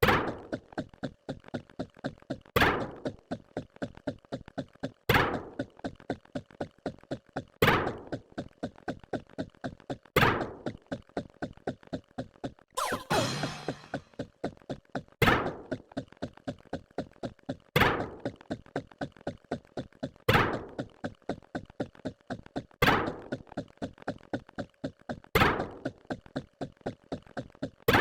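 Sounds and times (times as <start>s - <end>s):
ringing hit: 12.8s - 14.0s.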